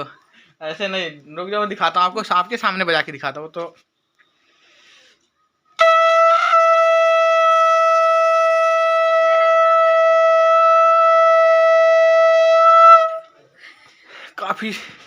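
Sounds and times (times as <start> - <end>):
conch shell long note: 5.8 - 13.3.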